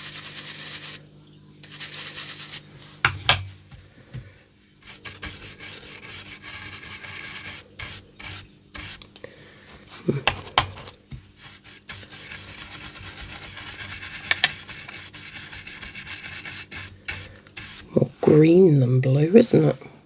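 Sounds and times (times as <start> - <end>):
brush scrubbing on card: 0.0 - 1.0, 1.6 - 2.8, 4.8 - 9.0, 9.9 - 18.2.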